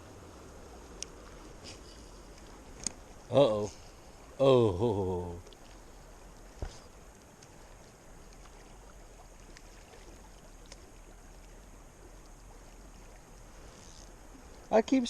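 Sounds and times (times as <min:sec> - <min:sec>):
small ticks: 0:05.4 - 0:12.6, 0:13.2 - 0:14.7.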